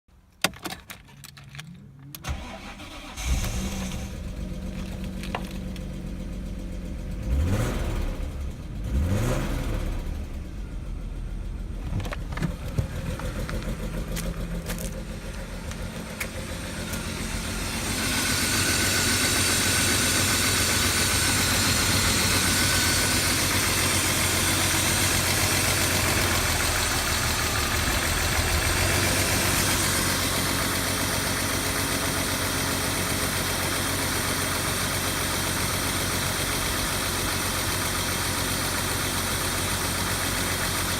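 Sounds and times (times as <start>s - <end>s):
car engine starting and idling: 0.4s - 40.9s
car engine revving: 2.3s - 32.4s.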